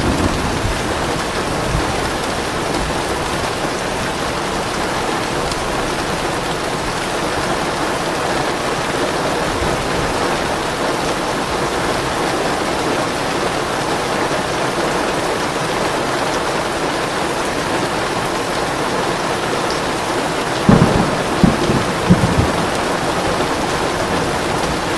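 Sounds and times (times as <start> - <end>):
thunder cracks and rumbles: 0.0 - 3.9, 20.6 - 24.9
steady rain falling: 0.0 - 24.9.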